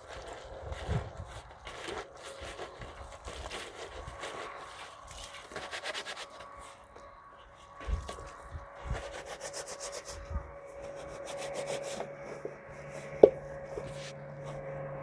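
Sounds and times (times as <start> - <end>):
faint steady hum: 0.0 - 15.0
scraping on wooden surface: 10.8 - 14.7.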